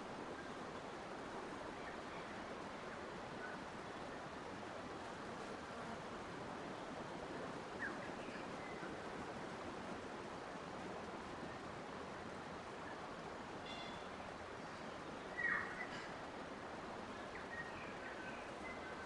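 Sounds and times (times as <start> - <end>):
flowing water rushing: 0.0 - 19.0
faint bird chirps: 13.6 - 14.1, 14.7 - 16.2, 17.1 - 19.0.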